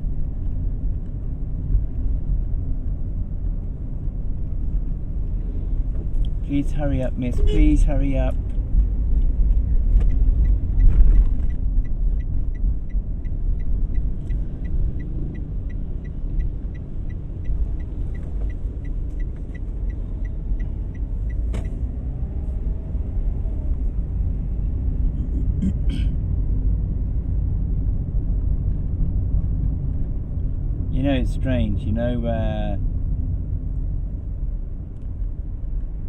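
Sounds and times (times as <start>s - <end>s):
car engine and road rumble: 0.0s - 36.0s
turn signal ticking: 4.4s - 22.4s
brief beep: 7.3s - 7.8s.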